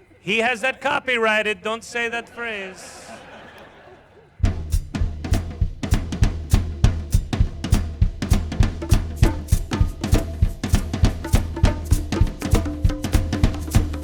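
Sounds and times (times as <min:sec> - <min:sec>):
drum kit fast beat: 0:04.4 - 0:14.0
held instrument notes: 0:08.8 - 0:14.0.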